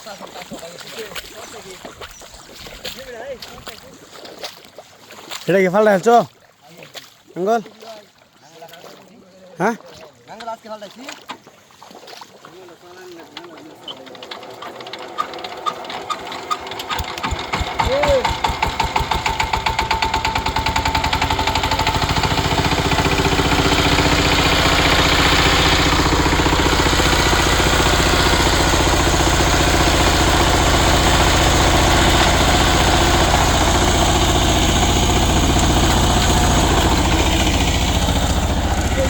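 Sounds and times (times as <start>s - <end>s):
small engine running: 12.9s - 39.0s.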